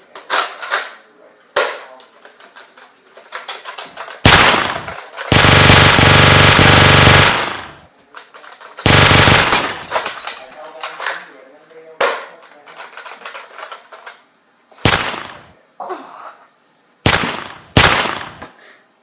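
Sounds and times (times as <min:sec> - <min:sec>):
machine-gun bursts: 0:04.2 - 0:07.9, 0:08.8 - 0:10.3, 0:14.8 - 0:15.5, 0:17.1 - 0:18.4.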